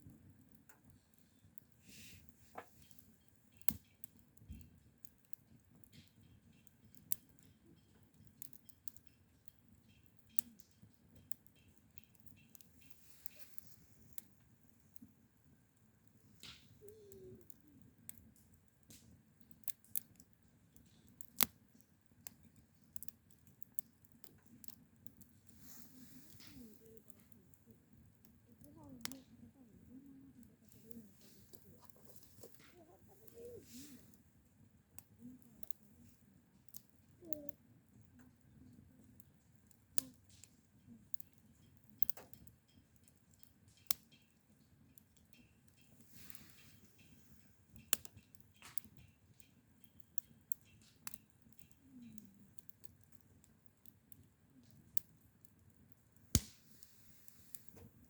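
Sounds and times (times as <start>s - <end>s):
faint low background noise: 0.0s - 58.0s
sharp clicks and snaps: 16.4s - 21.6s, 56.3s - 56.9s.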